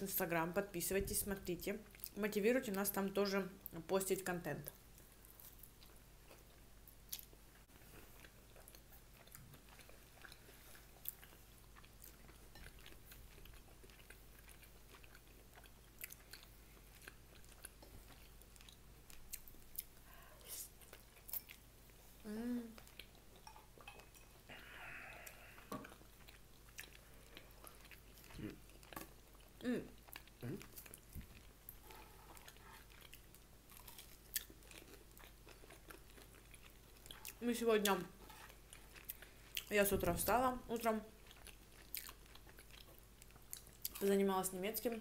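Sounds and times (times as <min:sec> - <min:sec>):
chewing and biting food: 0:05.0 - 0:20.0, 0:25.2 - 0:39.7, 0:41.2 - 0:44.0.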